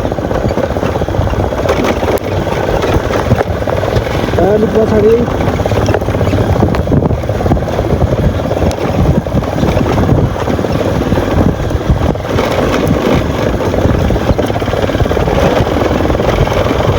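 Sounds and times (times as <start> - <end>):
motorcycle engine rumbling: 0.0 - 16.9
wind buffeting microphone: 0.0 - 16.9.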